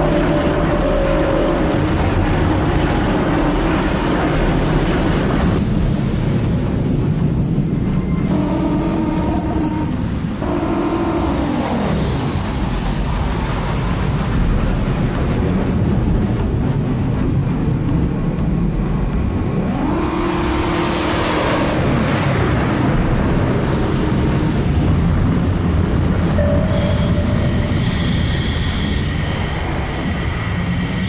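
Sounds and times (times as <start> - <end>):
fighter jet engine running: 0.0 - 31.0
short steady tones: 7.2 - 13.8, 26.4 - 28.3.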